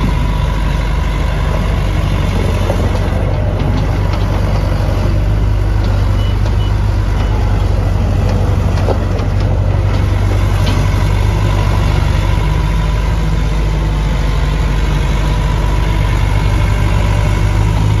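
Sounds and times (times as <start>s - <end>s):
diesel engine running: 0.0s - 18.0s
faint short beeps: 6.1s - 7.4s.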